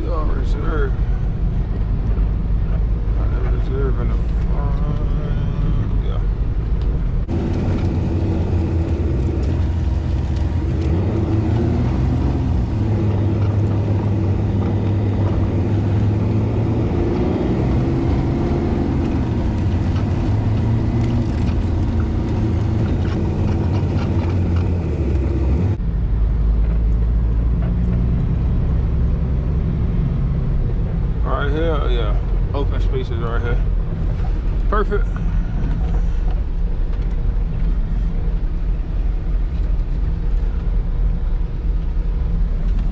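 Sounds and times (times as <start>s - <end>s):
diesel truck engine running: 7.3s - 25.8s.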